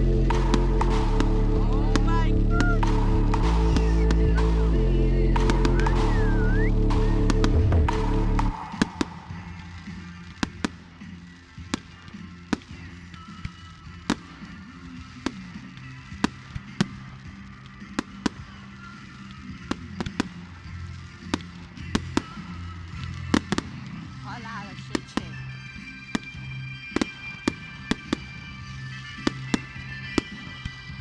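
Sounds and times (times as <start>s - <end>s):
low background music: 0.0s - 31.0s
fireworks bangs and cracks: 0.3s - 13.0s.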